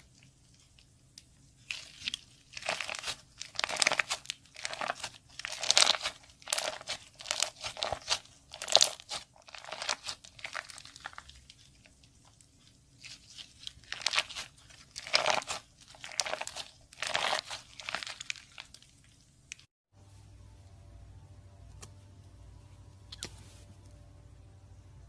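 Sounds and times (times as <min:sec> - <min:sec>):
slime squeezed and crackling: 0:01.6 - 0:19.7.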